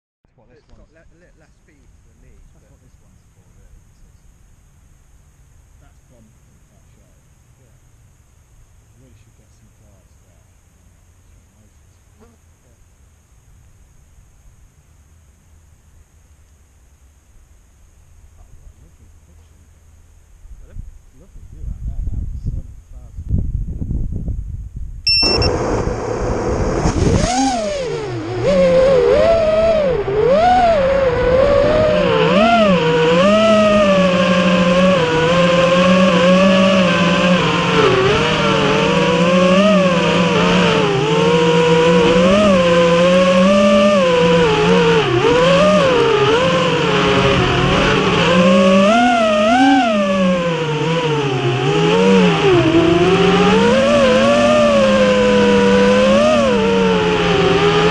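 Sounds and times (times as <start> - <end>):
drone motors whining: 25.1 - 57.9.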